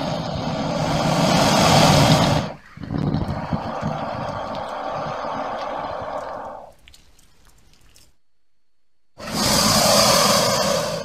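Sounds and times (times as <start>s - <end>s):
crocodile hissing: 0.0s - 6.8s, 9.2s - 11.0s
low rough growl: 0.0s - 6.8s.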